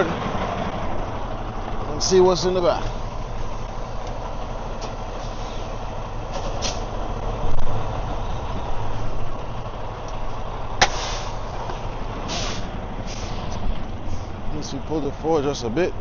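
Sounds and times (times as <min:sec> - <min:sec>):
diesel truck engine rumbling: 0:00.0 - 0:16.0
air brake hiss: 0:10.8 - 0:11.4, 0:12.3 - 0:14.3.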